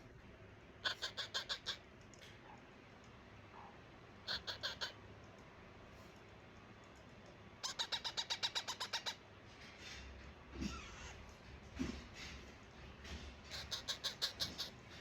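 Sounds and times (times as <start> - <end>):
parakeet chick squawking: 0.8 - 1.8, 4.3 - 5.0, 7.6 - 9.2, 13.5 - 14.8.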